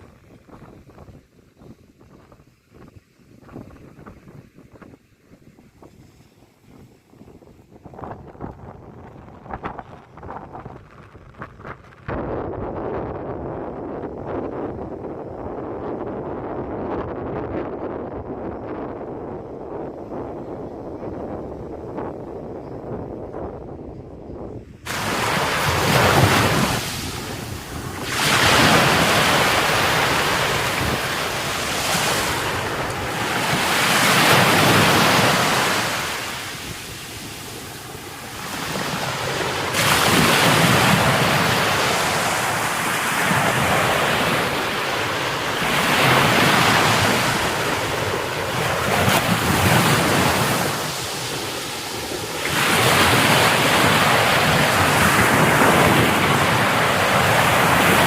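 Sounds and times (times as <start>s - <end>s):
wind buffeting microphone: 0.0s - 58.0s
surf breaking on shore: 24.8s - 58.0s.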